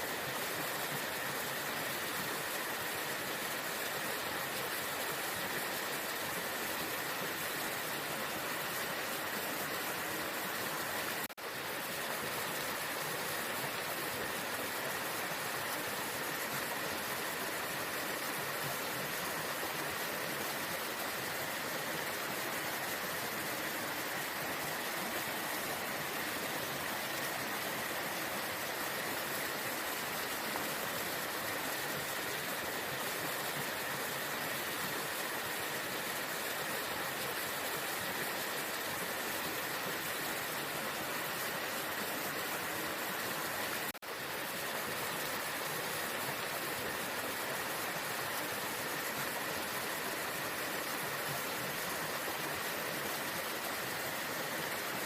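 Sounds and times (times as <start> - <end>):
waterfall roaring: 12.4 - 44.6.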